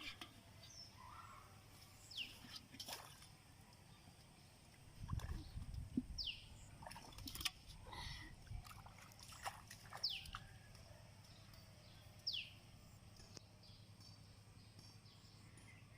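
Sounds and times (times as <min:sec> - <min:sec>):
faint splashing in water: 0:02.4 - 0:03.4, 0:05.0 - 0:05.7, 0:06.6 - 0:10.5.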